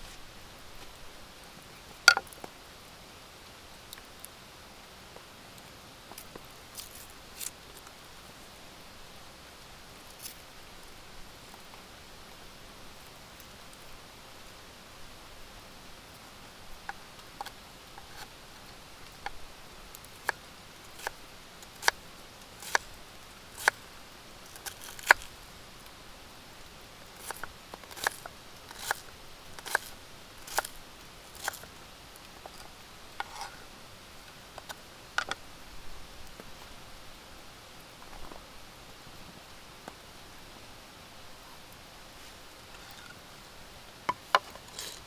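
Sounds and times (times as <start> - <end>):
faint steady hiss: 0.0 - 45.0.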